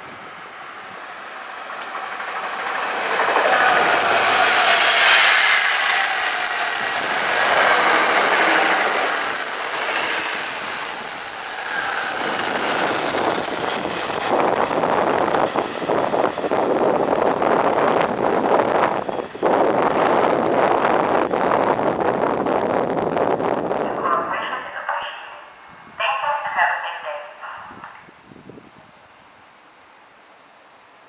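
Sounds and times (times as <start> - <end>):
train passing at speed: 0.0 - 28.6
wind buffeting the microphone: 12.2 - 24.3, 27.6 - 29.0.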